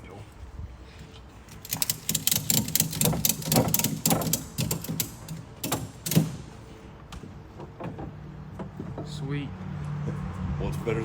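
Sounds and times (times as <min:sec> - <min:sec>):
ratchet strap clicking: 0:01.5 - 0:06.4.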